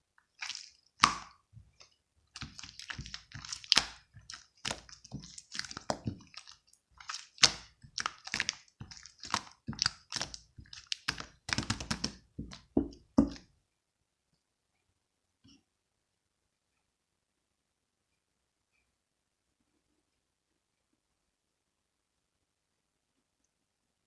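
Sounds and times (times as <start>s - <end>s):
slime squished by hand: 0.4s - 13.5s.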